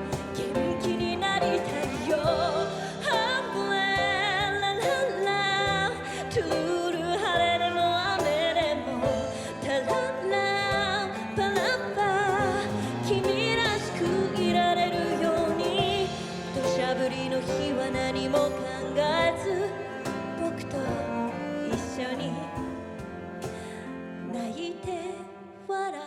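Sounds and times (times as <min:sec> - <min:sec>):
percussion: 0:00.0 - 0:25.0
cello: 0:00.0 - 0:26.0
piano: 0:00.0 - 0:26.0.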